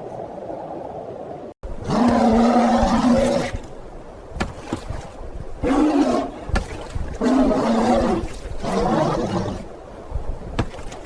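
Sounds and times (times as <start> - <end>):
bear growling: 1.7 - 9.7
sharp knocks: 4.3 - 5.1, 10.5 - 11.0.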